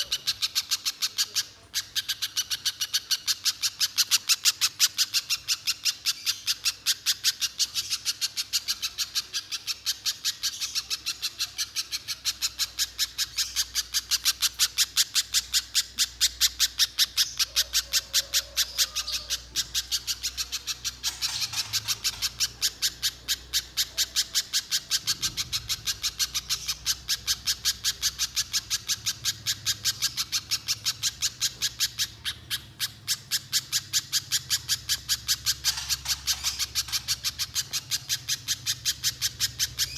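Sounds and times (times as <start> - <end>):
bird calling high sharp chips: 0.0 - 39.9.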